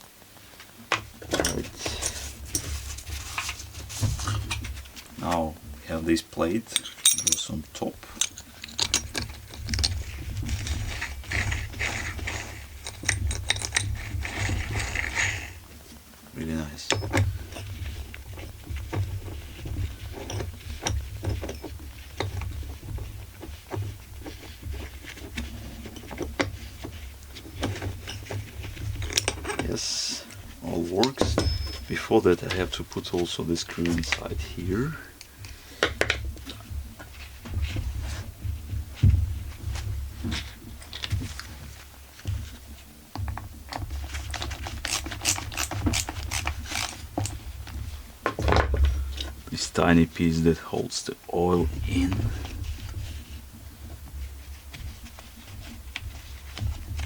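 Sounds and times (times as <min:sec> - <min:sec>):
low steady hum: 0:01.2 - 0:57.0
small metal parts clicking: 0:06.7 - 0:15.4, 0:44.3 - 0:47.0.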